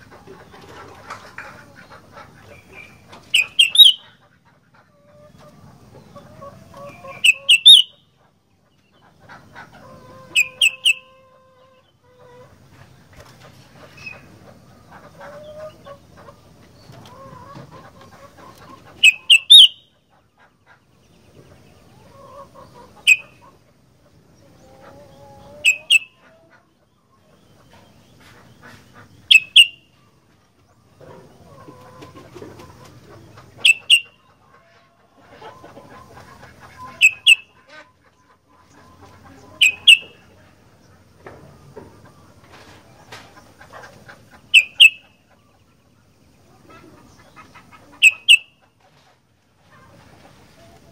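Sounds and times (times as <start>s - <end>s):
bird giving sharp high calls: 3.4s - 4.1s, 7.2s - 8.0s, 10.4s - 11.0s, 19.0s - 19.9s, 25.6s - 26.2s, 29.3s - 29.8s, 33.6s - 34.2s, 36.9s - 37.5s, 39.6s - 40.2s, 44.5s - 45.1s, 48.0s - 48.6s.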